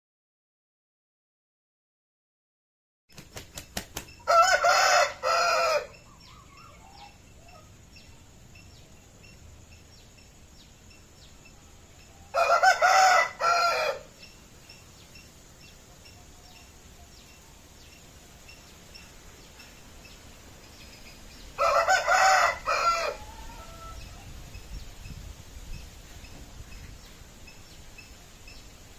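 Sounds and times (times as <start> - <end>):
rooster crowing: 4.2 - 7.2, 12.3 - 14.1, 21.6 - 24.3.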